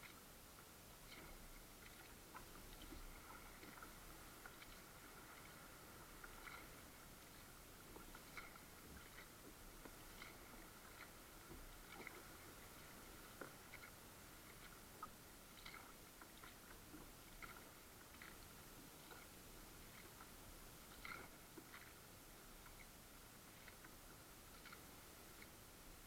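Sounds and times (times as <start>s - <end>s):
small clicks and ticks: 0.0s - 22.0s, 22.6s - 22.9s, 23.5s - 25.6s
low hiss: 0.0s - 26.0s.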